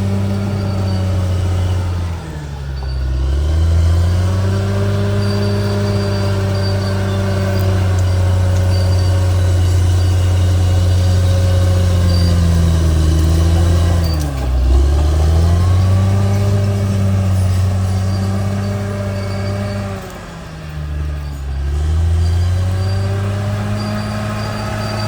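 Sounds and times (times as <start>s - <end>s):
bulldozer diesel engine running: 0.0s - 25.0s.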